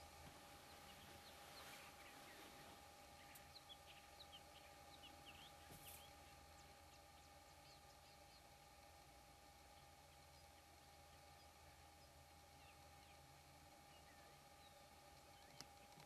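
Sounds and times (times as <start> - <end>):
faint steady hum: 0.0 - 16.0
bird chirps: 0.6 - 8.5.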